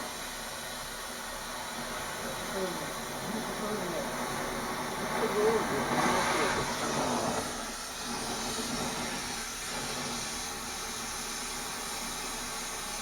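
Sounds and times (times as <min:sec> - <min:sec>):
steady hiss: 0:00.0 - 0:10.4.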